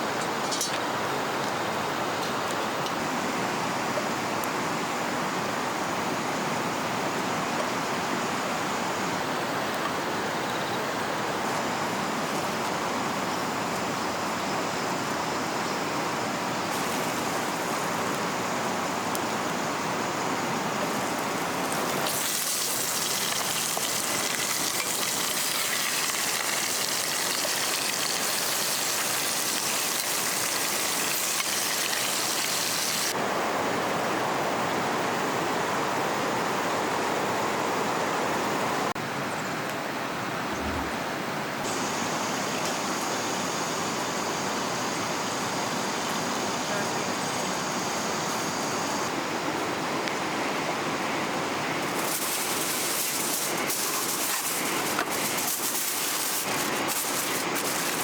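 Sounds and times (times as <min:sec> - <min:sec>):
flowing river water: 0:43.1 - 0:58.0.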